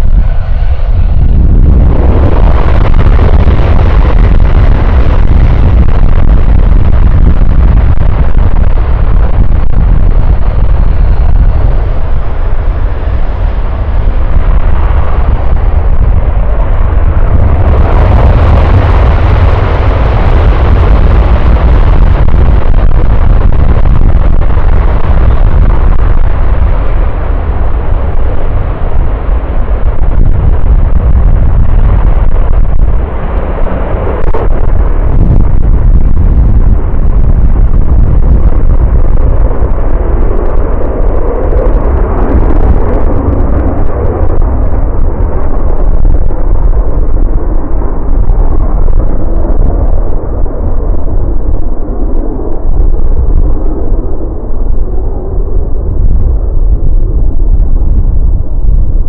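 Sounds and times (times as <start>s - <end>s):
jet engine roar: 0.0s - 59.0s.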